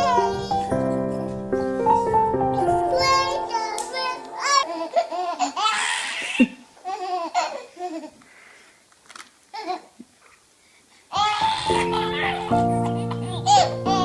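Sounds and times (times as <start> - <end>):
baby laughing: 0.0 - 8.0.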